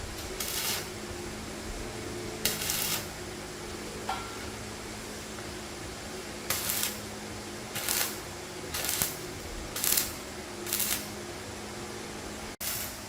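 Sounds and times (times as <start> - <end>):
steady low hum: 0.0 - 13.0
short hissing bursts: 0.3 - 1.0, 2.5 - 3.2, 12.6 - 13.0.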